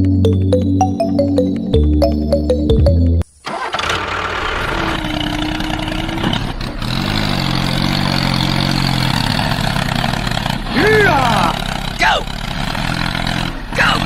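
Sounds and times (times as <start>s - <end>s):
model tractor engine drone: 3.5s - 14.0s.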